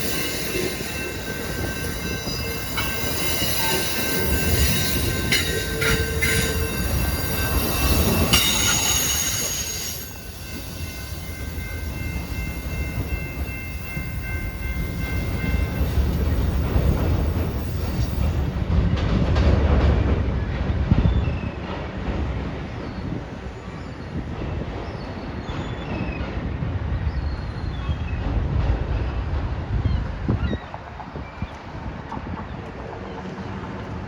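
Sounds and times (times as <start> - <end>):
high-pitched wheel squeal: 0.0 - 11.6
train wheels rumbling on rail: 0.0 - 34.0.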